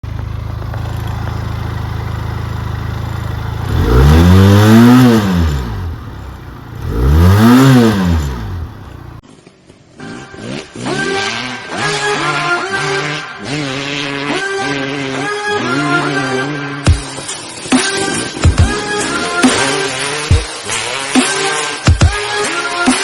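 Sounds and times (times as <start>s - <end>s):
motorcycle engine idling and revving: 0.0s - 23.0s
music: 10.0s - 23.0s.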